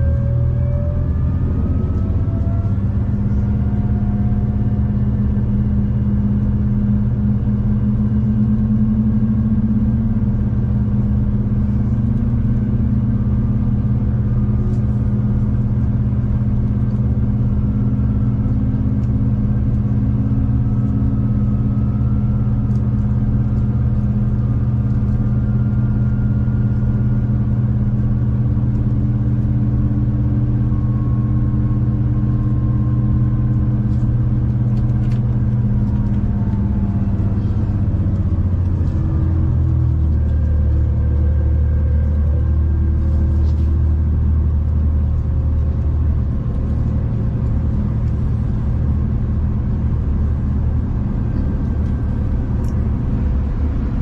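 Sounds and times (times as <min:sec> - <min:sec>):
train engine and rolling drone: 0:00.0 - 0:54.0.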